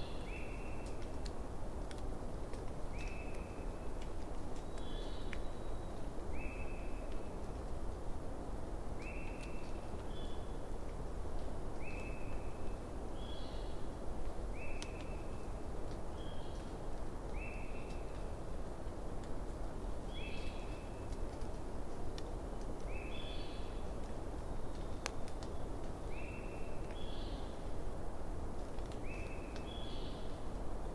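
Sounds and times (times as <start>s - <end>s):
campfire crackling: 0.2s - 6.2s, 17.9s - 22.9s, 23.8s - 29.7s.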